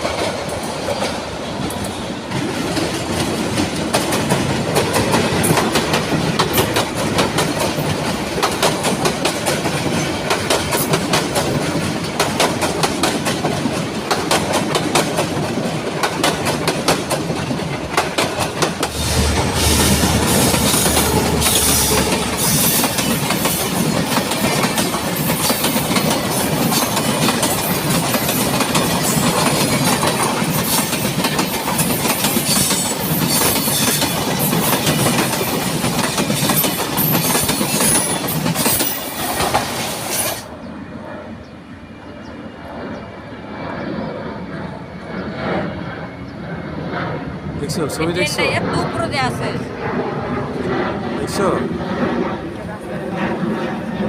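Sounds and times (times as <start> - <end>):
train wheels clickety-clack: 0.0 - 40.5
train rumble: 0.0 - 54.0.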